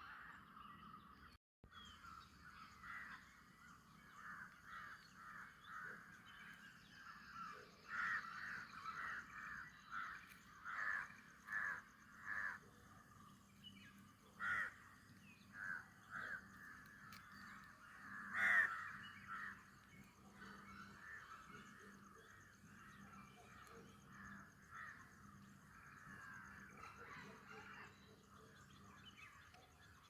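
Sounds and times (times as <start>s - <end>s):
crows cawing: 2.8s - 6.3s, 7.0s - 12.7s, 14.3s - 27.9s.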